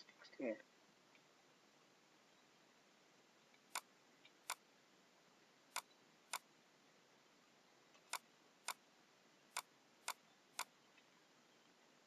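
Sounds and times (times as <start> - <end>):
computer mouse clicking: 3.6 - 4.6, 5.7 - 6.5, 8.0 - 8.8, 9.6 - 10.7.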